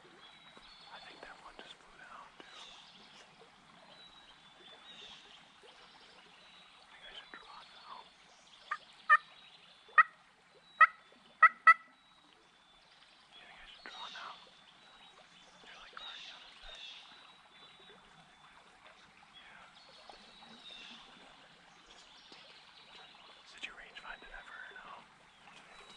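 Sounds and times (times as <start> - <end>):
small birds singing faintly: 0.0 - 25.9
turkey calling: 8.7 - 9.2, 9.9 - 10.2, 10.8 - 12.0.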